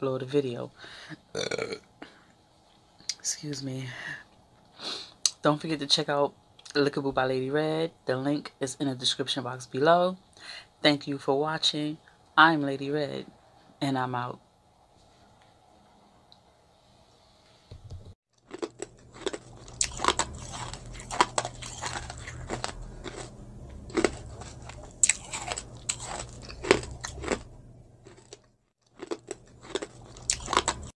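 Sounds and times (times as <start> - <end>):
steady low hum: 0.0 - 30.9
crunchy food chewing: 18.4 - 30.9.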